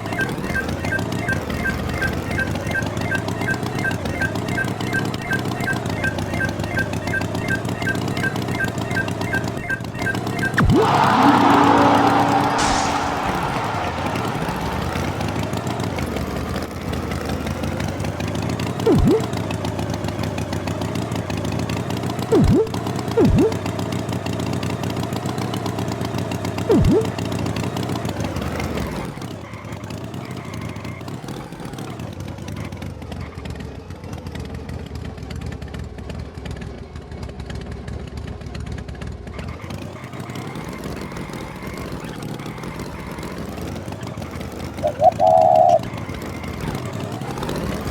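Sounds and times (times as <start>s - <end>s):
cartoon tractor engine: 0.0s - 47.9s
short loud blips: 10.5s - 16.7s, 18.9s - 19.4s, 22.3s - 23.7s, 26.7s - 27.2s.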